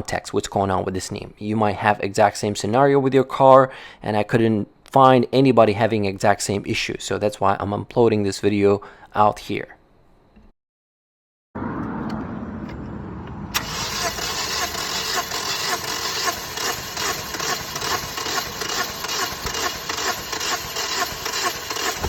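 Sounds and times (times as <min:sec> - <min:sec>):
engine cranking without starting: 0:11.8 - 0:22.0.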